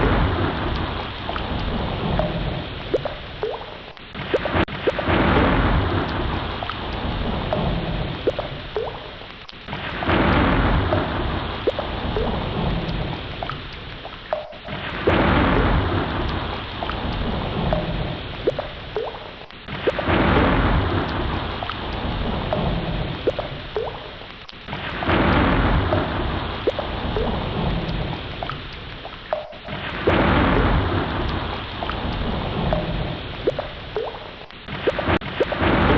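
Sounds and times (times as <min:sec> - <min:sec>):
sea water rushing: 0:00.0 - 0:35.9
ocean waves breaking: 0:09.7 - 0:13.4, 0:29.3 - 0:35.9.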